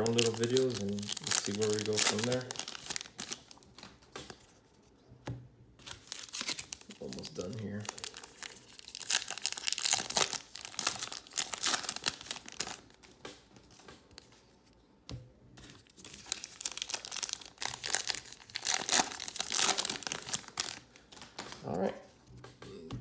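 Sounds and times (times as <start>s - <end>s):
wrappers crinkling and tearing: 0.0s - 4.4s, 5.8s - 14.4s, 15.8s - 21.9s.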